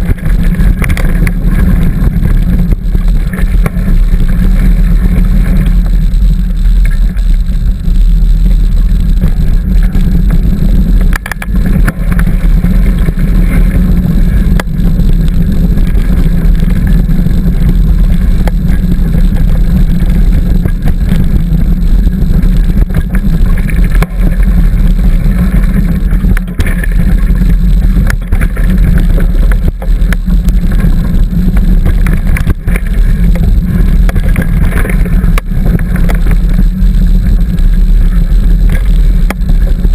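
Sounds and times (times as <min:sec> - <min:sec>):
bicycle clicks and rattles: 0:00.0 - 0:07.9
wind buffeting microphone: 0:00.0 - 0:39.9.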